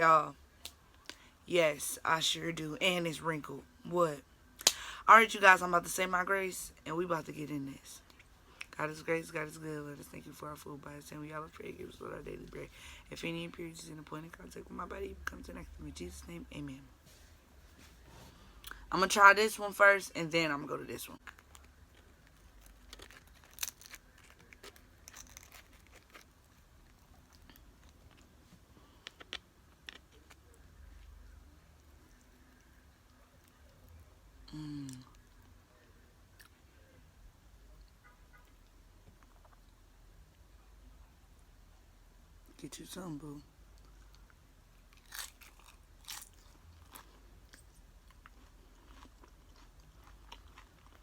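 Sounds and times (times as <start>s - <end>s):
chips crunching while chewed: 21.2s - 28.3s, 44.9s - 51.0s.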